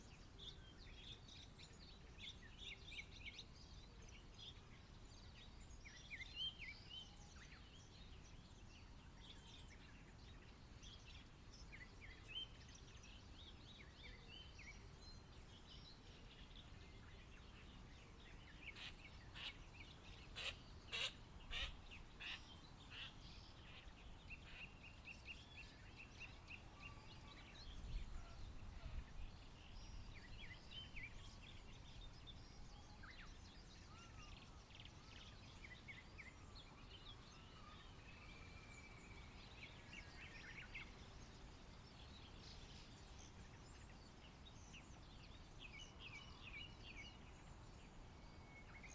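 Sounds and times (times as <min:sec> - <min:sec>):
small birds chirping: 0:00.0 - 0:48.9
harsh bird calls: 0:18.7 - 0:23.9.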